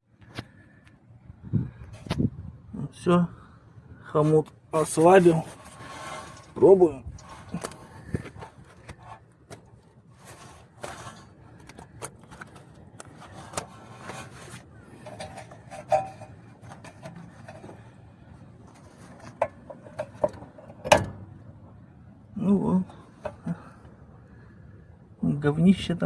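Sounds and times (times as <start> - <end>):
scrapes and clicks of tools: 4.8 - 18.0.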